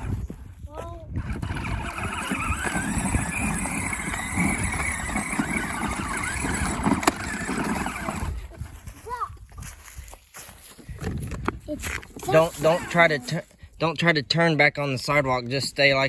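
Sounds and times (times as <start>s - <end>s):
wheels rumbling on hard ground: 0.0s - 9.8s, 11.0s - 13.5s
toy motor whining: 1.1s - 8.4s, 12.3s - 13.3s.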